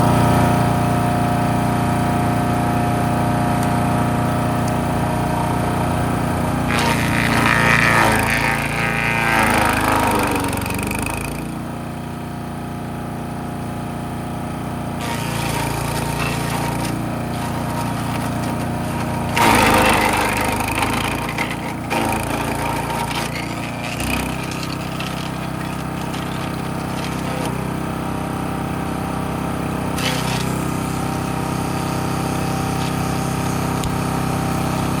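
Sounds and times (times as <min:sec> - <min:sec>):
wood chipper engine running: 0:00.0 - 0:35.0
branches being chipped: 0:15.0 - 0:27.6.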